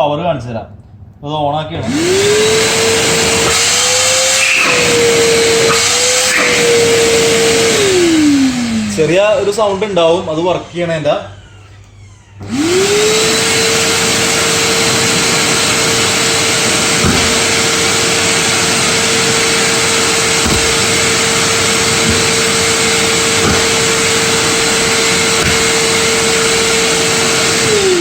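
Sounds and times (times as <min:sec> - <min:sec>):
vacuum cleaner whining: 0:01.8 - 0:28.0
plastic knocking in vacuum hose: 0:22.0 - 0:24.0.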